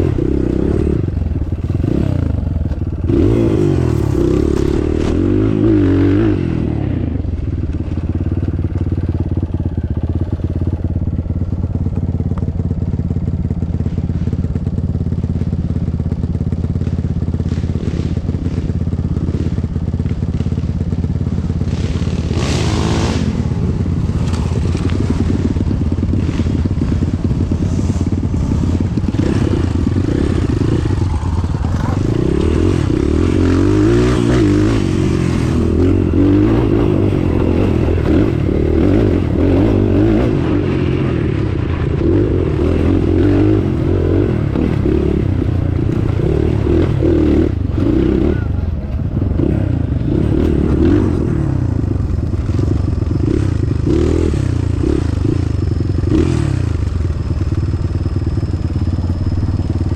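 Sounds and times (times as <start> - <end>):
off-road vehicle engine revving: 0.0 - 7.2, 21.6 - 59.9.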